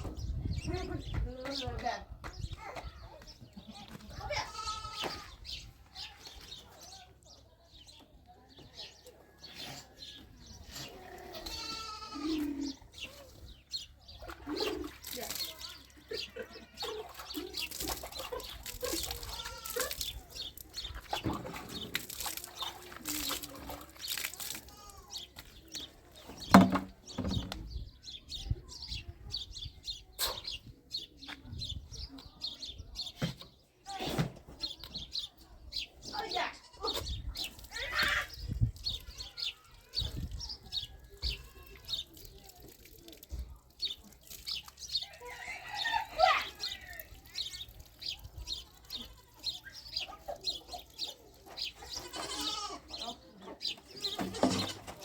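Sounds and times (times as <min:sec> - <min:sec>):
small birds chirping: 0:00.0 - 0:55.0
chickens clucking: 0:47.6 - 0:55.0.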